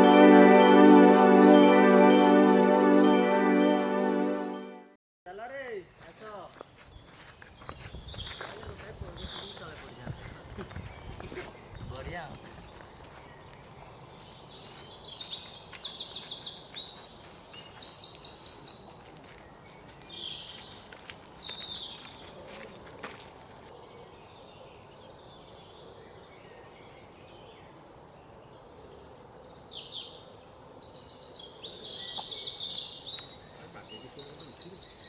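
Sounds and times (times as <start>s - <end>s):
birds chirping and trilling: 31.4s - 35.0s.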